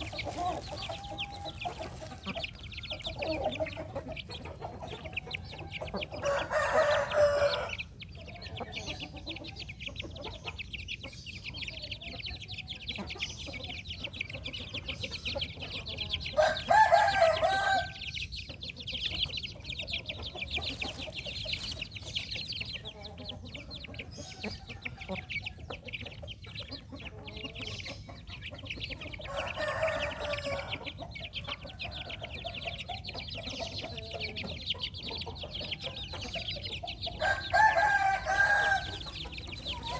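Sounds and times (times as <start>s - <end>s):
chickens clucking: 0.0s - 39.9s
rooster crowing: 6.2s - 7.8s, 16.4s - 18.0s, 29.3s - 30.8s, 37.2s - 39.1s.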